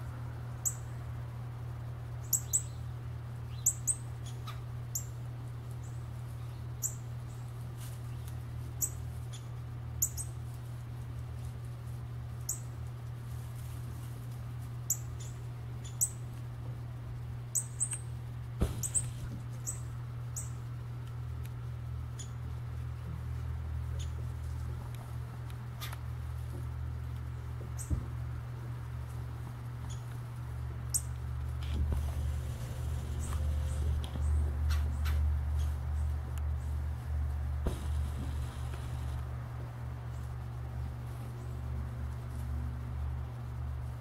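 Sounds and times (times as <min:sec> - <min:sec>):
steady low hum: 0:00.0 - 0:44.0
bird chip calls: 0:00.6 - 0:00.9, 0:02.2 - 0:02.9, 0:03.5 - 0:05.2, 0:05.8 - 0:07.4, 0:08.8 - 0:10.4, 0:12.4 - 0:12.7, 0:14.9 - 0:16.2, 0:17.5 - 0:18.1, 0:18.8 - 0:20.6, 0:22.1 - 0:22.4, 0:29.8 - 0:30.1.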